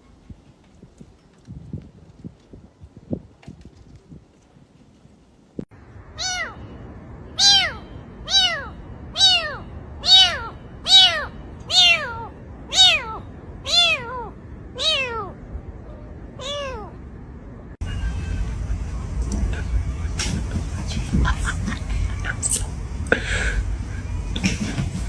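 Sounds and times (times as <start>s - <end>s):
cat meowing: 6.2s - 6.6s, 7.4s - 15.4s, 16.4s - 17.0s.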